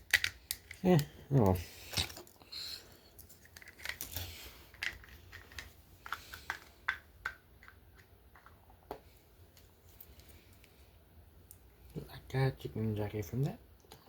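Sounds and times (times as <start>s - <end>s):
packaging crinkling and clicking: 0.0s - 1.1s, 3.2s - 7.8s.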